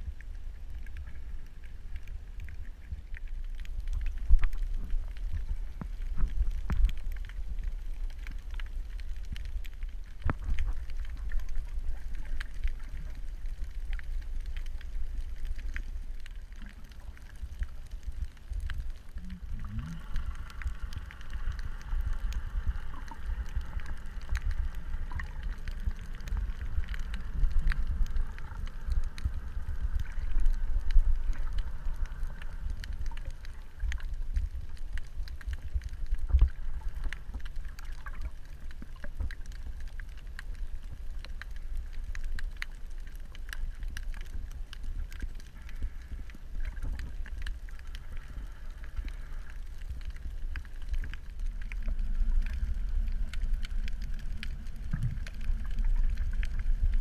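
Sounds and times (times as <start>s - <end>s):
crackling clicks: 0.0s - 57.0s
underwater low rumble: 0.0s - 57.0s
multi-tone hum: 18.3s - 34.3s.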